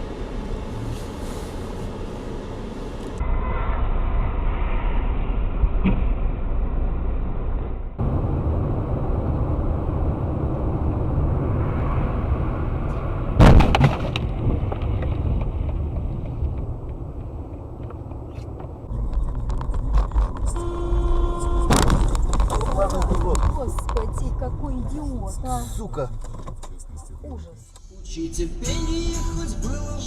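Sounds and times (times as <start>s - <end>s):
car road and engine noise: 0.0s - 30.0s
loud collision impact: 13.4s - 14.6s.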